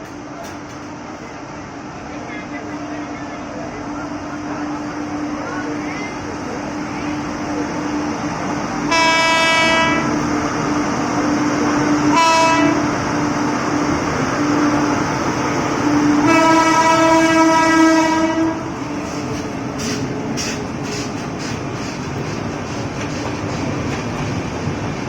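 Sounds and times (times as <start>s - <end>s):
train wheels clicking on rail joints: 0.0s - 1.0s, 18.9s - 25.0s
passing train noise: 0.0s - 25.0s
train horn blasts: 8.9s - 10.2s, 12.1s - 13.0s, 16.2s - 18.7s.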